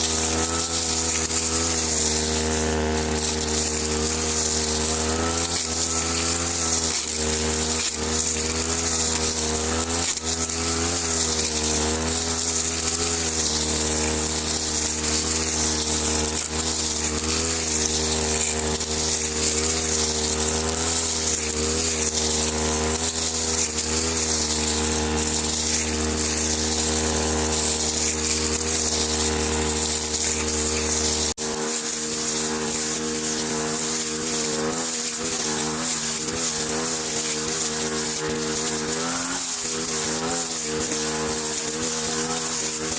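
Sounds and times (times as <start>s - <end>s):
small motor buzzing: 0.0s - 42.9s.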